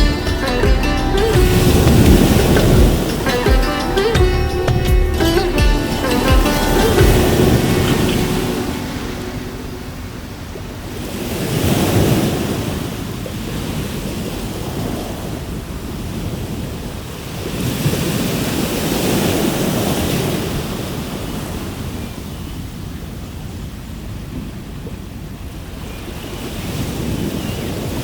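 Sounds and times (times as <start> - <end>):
waves breaking on shore: 0.0 - 28.0.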